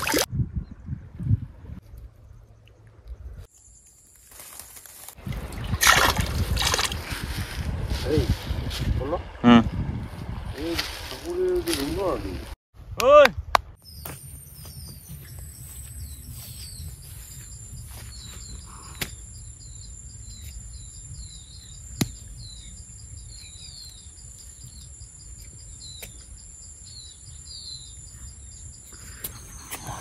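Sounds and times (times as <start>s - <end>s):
low wind rumble: 0.0s - 3.5s, 5.2s - 30.0s
bird chirping: 13.8s - 30.0s.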